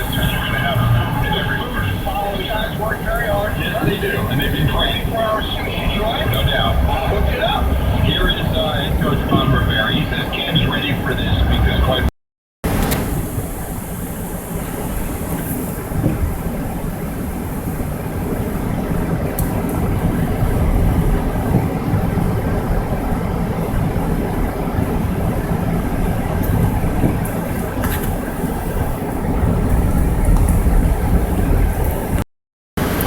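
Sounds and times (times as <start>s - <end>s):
car engine and tyre rumble: 0.0s - 33.0s.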